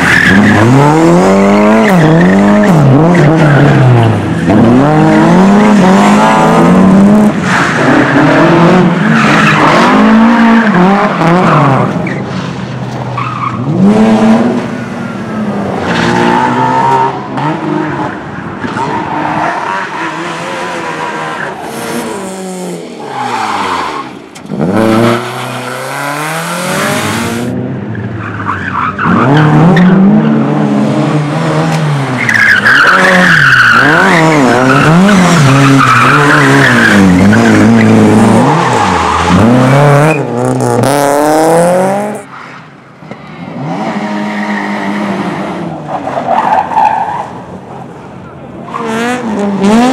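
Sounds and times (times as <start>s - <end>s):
tyres squealing and skidding: 0.0s - 14.0s, 15.8s - 30.4s, 31.9s - 40.6s, 42.1s - 47.5s
race car engine revving: 19.4s - 27.5s.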